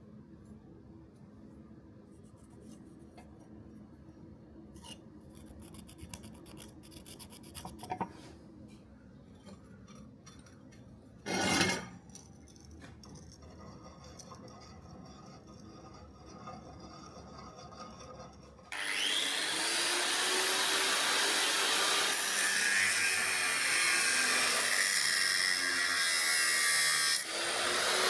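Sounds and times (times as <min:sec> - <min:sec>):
scraping on steel: 0:04.7 - 0:08.4, 0:09.3 - 0:18.7.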